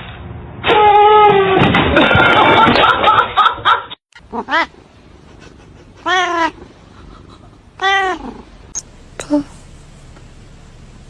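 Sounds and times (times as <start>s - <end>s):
cat meowing: 4.2s - 4.8s, 6.0s - 6.7s, 7.8s - 8.4s.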